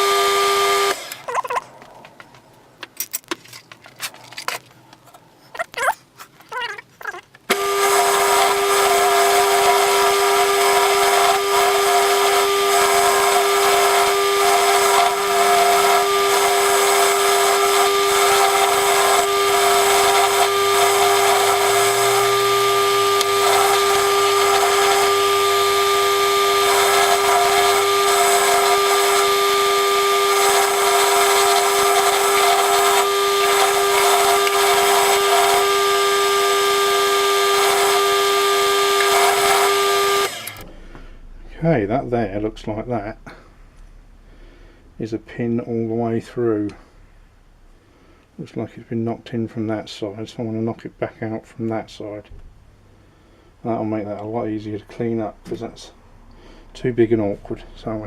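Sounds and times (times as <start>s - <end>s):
wire wheel motor hum: 0.0s - 1.6s, 7.5s - 40.7s
wire wheel scrubbing metal: 7.5s - 40.6s.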